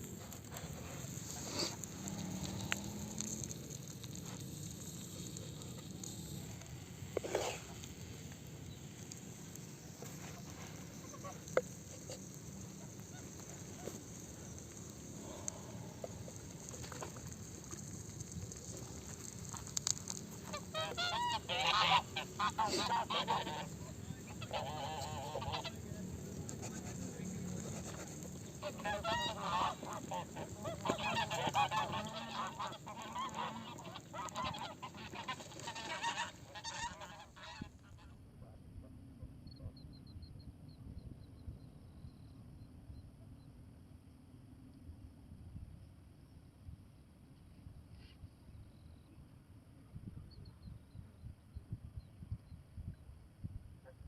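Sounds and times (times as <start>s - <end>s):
faint clicks: 0.0s - 37.0s
low steady background noise: 0.0s - 54.0s
geese honking: 9.1s - 38.0s.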